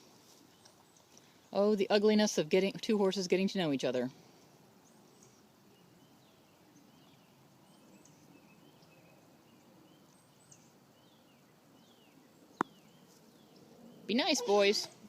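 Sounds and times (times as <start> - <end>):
faint bird chirps: 4.8 - 15.0.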